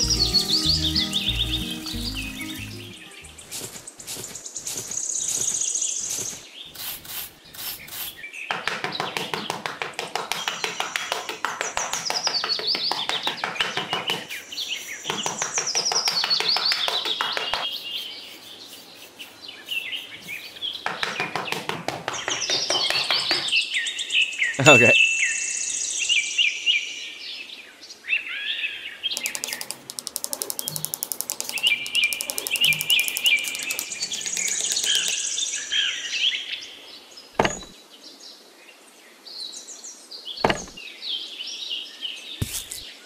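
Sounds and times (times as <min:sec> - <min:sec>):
birds chirping in trills: 0:00.0 - 0:26.0, 0:28.8 - 0:36.4.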